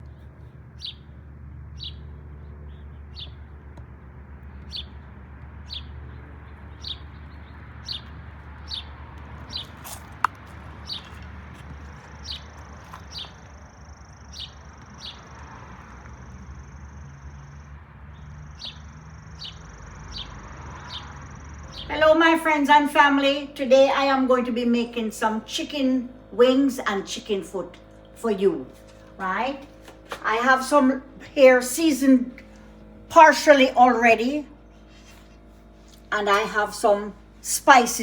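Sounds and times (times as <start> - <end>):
low steady hum: 0.0 - 38.0
bird chirping: 5.7 - 11.2, 12.2 - 15.4, 16.2 - 21.9.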